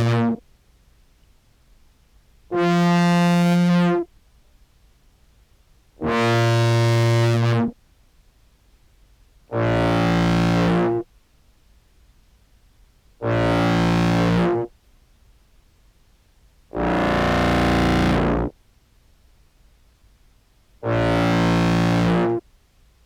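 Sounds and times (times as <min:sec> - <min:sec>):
fuzz-distorted low clarinet notes: 0:00.0 - 0:00.4, 0:02.5 - 0:04.1, 0:06.0 - 0:07.8, 0:09.5 - 0:11.1, 0:13.2 - 0:14.7, 0:16.7 - 0:18.5, 0:20.8 - 0:22.4.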